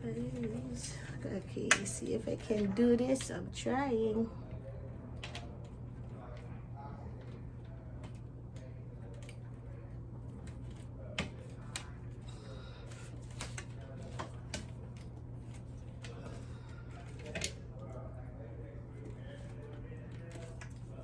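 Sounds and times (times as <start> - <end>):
small clicks and knocks of parts: 7.2 - 9.6, 12.9 - 18.0, 19.3 - 21.0.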